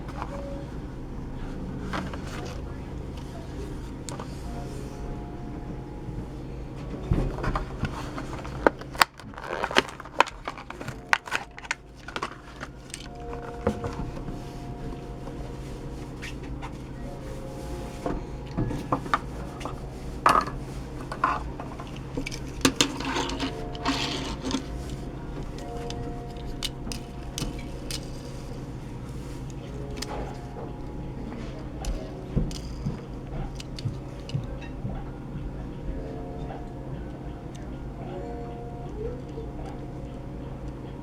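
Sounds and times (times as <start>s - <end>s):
steady low hum: 0.0s - 41.0s
plastic package crinkling: 8.3s - 13.5s.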